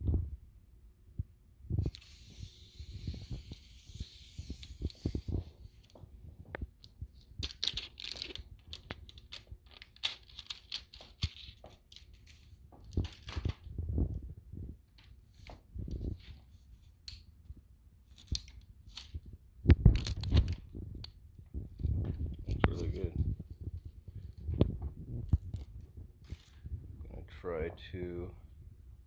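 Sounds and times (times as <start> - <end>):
plastic and cardboard tearing: 7.4 - 13.7.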